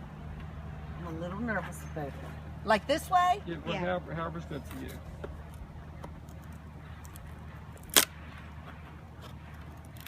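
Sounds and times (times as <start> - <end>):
steady low hum: 0.0 - 10.0
sharp wooden crack: 6.0 - 8.2.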